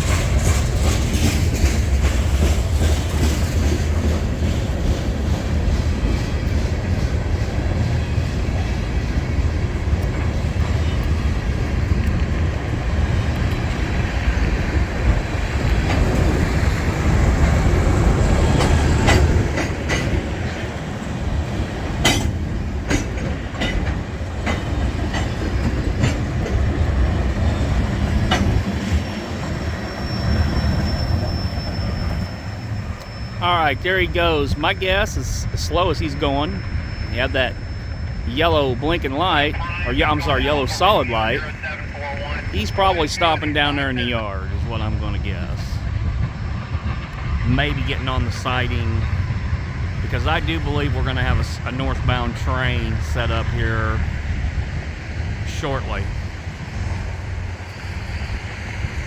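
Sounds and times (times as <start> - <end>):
wheels clicking over rail joints: 0.0 - 31.3
freight train cars rumbling past: 0.0 - 59.0
high wheel squeal: 13.7 - 45.9.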